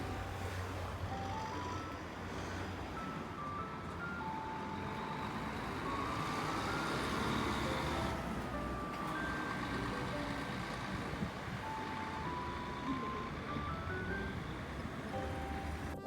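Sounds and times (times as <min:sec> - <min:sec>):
simple melody of held notes: 0:08.0 - 0:16.0.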